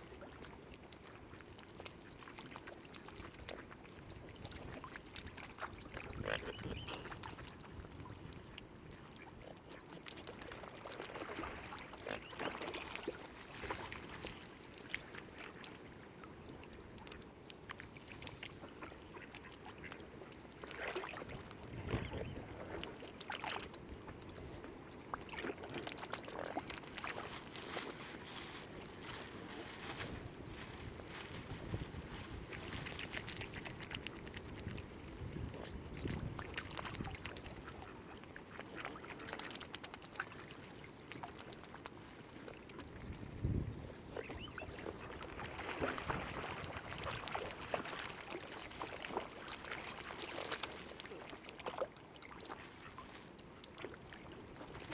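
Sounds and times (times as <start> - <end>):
lake water lapping: 0.0 - 54.9
wind on microphone: 5.9 - 8.6, 21.3 - 22.8, 29.0 - 37.6, 42.9 - 47.2.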